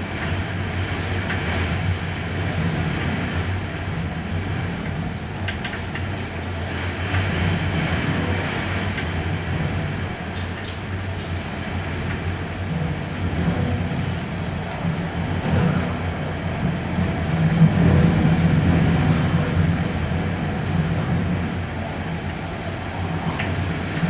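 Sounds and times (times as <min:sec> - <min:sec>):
wind and rain roaring: 0:00.0 - 0:24.0.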